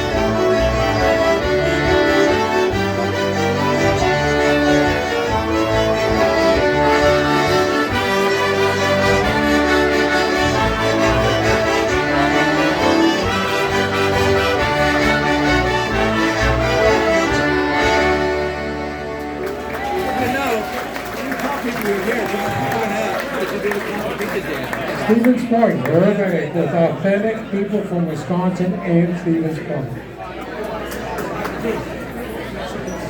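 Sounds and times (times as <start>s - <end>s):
concertinas playing polka: 0.0s - 19.9s.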